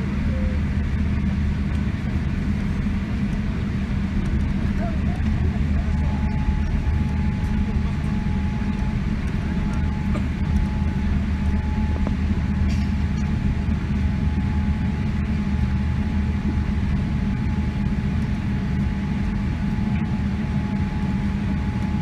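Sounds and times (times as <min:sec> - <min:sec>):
airliner cabin rumble: 0:00.0 - 0:22.0
thin steady whine: 0:00.0 - 0:22.0.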